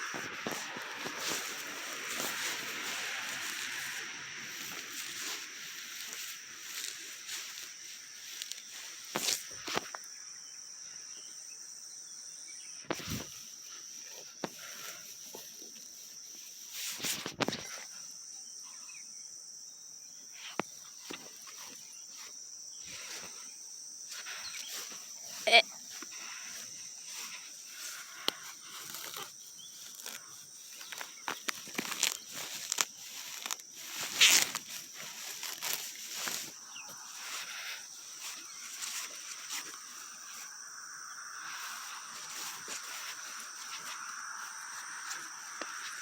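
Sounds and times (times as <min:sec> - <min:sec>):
rustling: 0:00.0 - 0:09.9, 0:24.1 - 0:40.5, 0:41.4 - 0:46.0
crickets chirping: 0:00.0 - 0:46.0.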